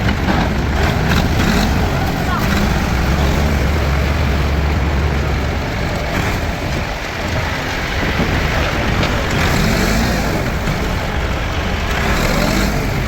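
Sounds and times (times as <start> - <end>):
heavy vehicle engine running: 0.0 - 13.0
steady rushing noise: 0.0 - 13.0.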